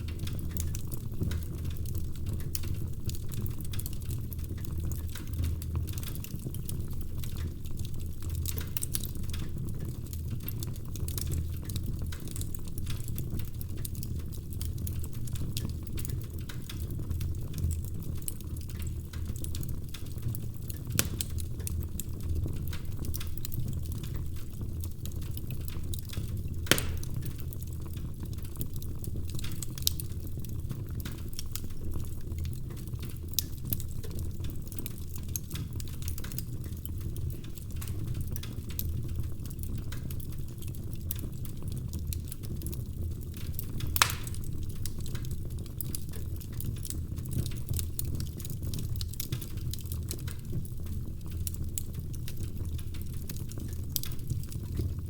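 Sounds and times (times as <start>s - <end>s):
log fire crackling: 0.0s - 55.0s.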